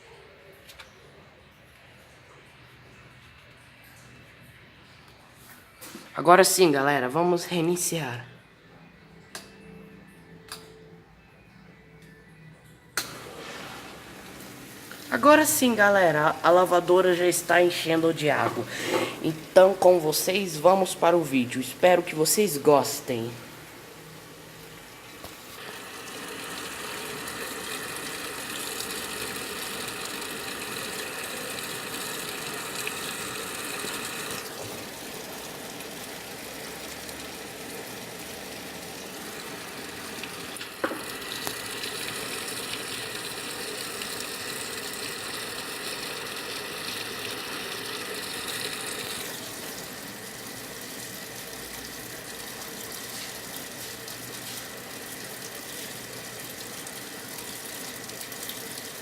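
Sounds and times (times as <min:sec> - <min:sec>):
water rushing into washing machine: 0:13.1 - 0:16.2, 0:25.1 - 0:59.0.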